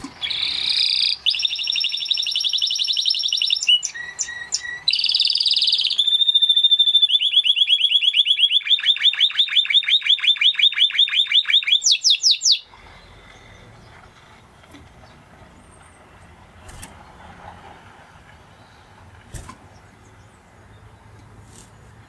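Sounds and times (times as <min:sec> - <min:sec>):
canary singing trills: 0:00.0 - 0:14.1.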